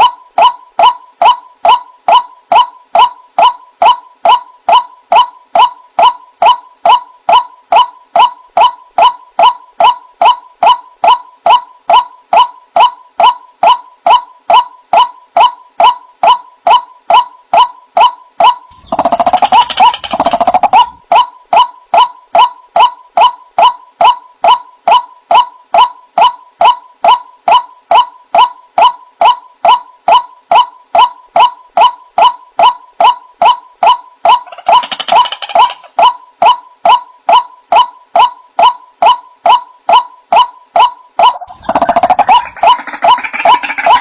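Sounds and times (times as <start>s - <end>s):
waterhen calling: 41.2s - 44.0s.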